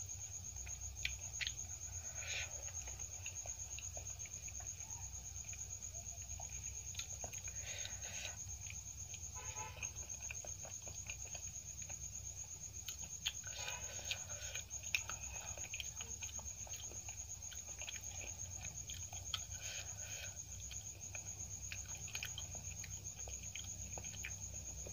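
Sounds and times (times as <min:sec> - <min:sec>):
wet chewing mouth sounds: 0:00.2 - 0:24.9.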